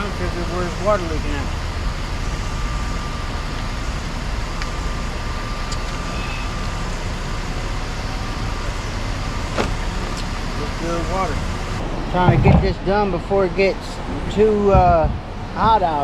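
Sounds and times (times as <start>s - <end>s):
faint thin whine: 0.0s - 11.8s
vehicle engine rumbling: 0.0s - 16.0s.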